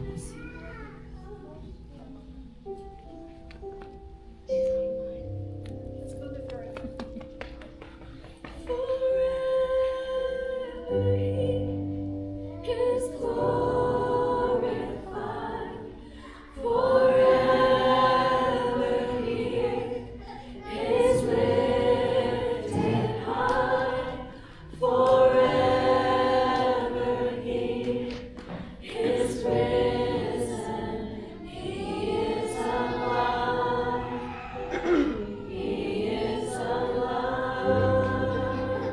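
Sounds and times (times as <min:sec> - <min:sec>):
congregation singing a praise song: 0:08.1 - 0:38.9.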